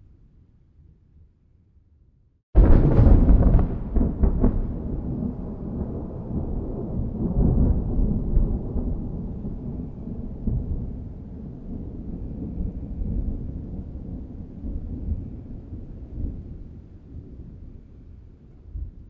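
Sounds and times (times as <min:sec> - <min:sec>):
thunder cracking and rumbling: 0:02.6 - 0:17.6.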